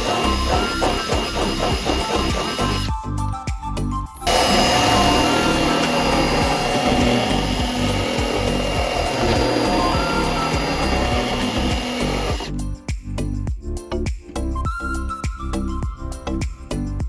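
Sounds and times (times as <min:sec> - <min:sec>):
handheld power tool running: 0:00.0 - 0:02.9, 0:04.3 - 0:12.5
background music: 0:00.0 - 0:17.0.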